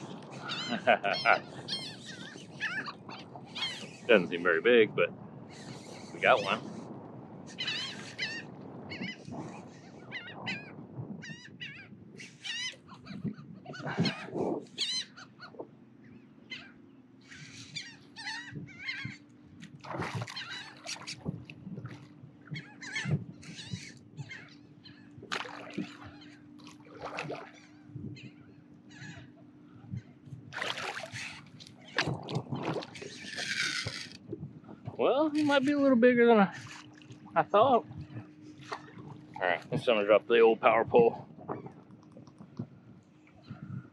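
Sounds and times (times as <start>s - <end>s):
seabirds calling: 0.0s - 43.9s.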